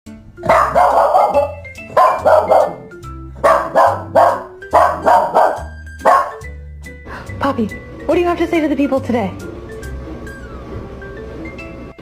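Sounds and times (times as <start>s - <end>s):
music with bass line: 0.1s - 12.0s
dog barks: 0.4s - 6.4s.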